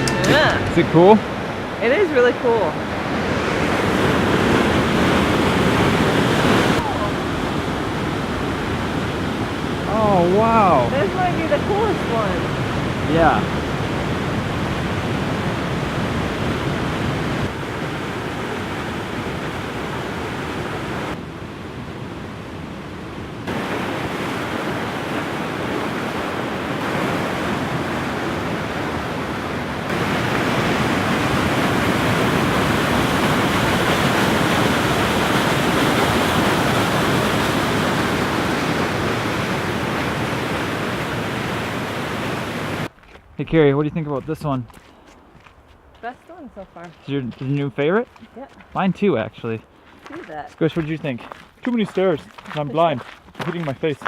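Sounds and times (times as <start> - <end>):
waterfall roaring: 0.0 - 42.9.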